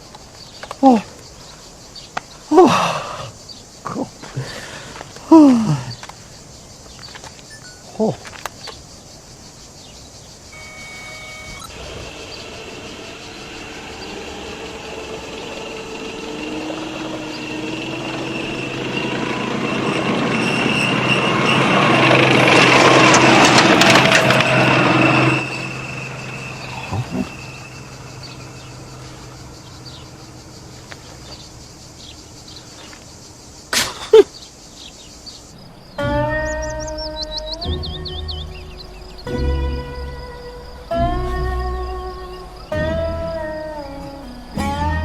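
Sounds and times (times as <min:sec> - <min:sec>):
approaching motor vehicle: 0:10.6 - 0:33.2.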